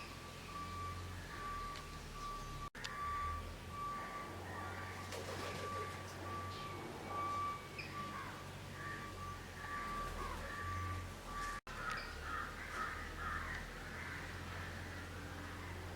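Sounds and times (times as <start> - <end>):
faint steady high tone: 0.0 - 12.1
crows cawing: 8.1 - 10.6, 11.7 - 15.8.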